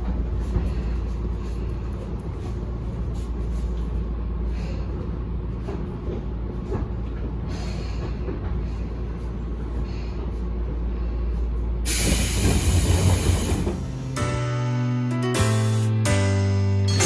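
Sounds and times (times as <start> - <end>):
train low rumble: 0.0 - 16.6
short hissing and clattering: 11.9 - 14.0.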